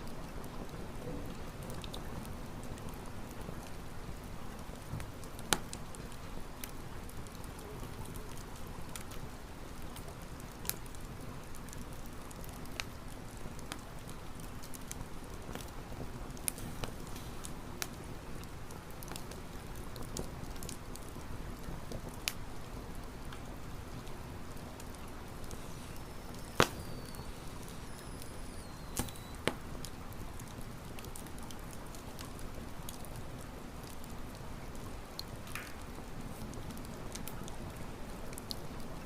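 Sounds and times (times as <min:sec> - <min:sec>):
campfire crackling: 0:00.0 - 0:39.0
faint high whistle: 0:25.6 - 0:29.4.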